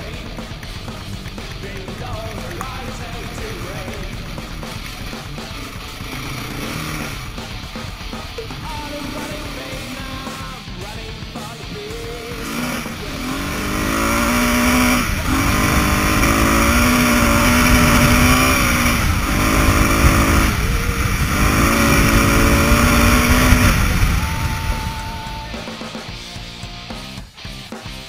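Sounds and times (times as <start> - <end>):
motorcycle engine accelerating: 0.0 - 28.0
wind rumble on microphone: 15.0 - 25.5.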